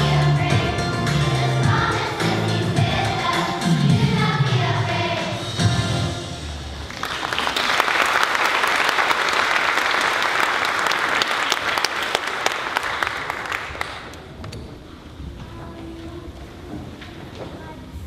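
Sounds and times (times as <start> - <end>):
audience applauding: 6.8 - 14.5.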